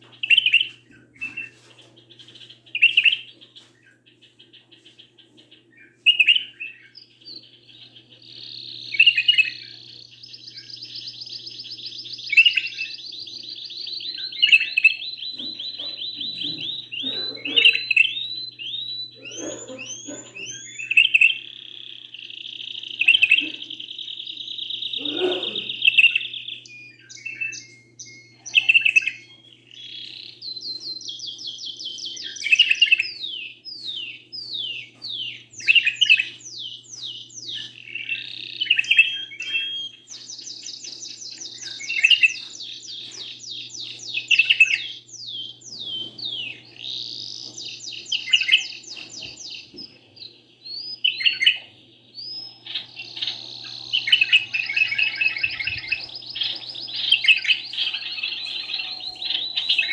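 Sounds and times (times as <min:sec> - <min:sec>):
canary trilling: 0:05.8 - 0:50.0, 0:50.7 - 0:59.9.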